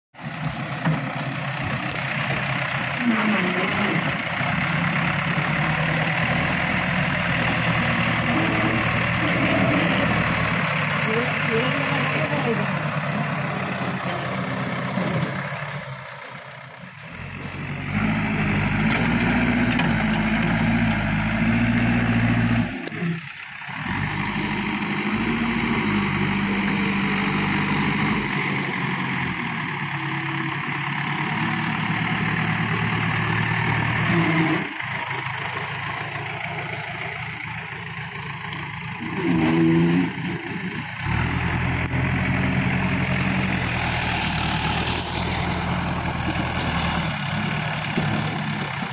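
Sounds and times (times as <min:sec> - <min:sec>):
heavy machinery diesel engine: 0:00.1 - 0:48.9.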